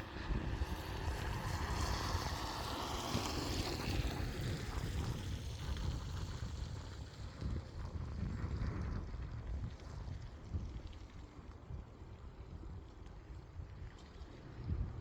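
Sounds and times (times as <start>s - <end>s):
aircraft engines passing: 0.0s - 8.2s
wind rumbling on microphone: 0.0s - 15.0s.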